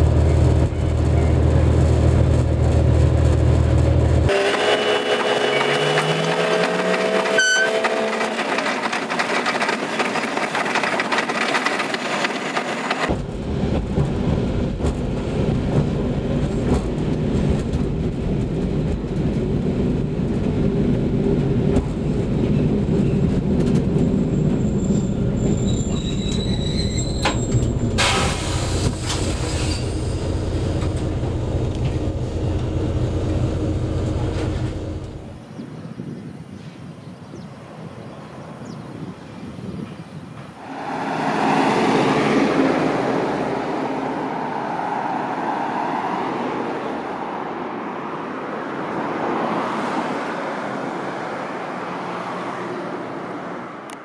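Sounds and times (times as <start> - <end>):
train wheel noise: 0.0 - 35.4
diesel railcar engine drone: 0.0 - 36.7, 39.2 - 54.0.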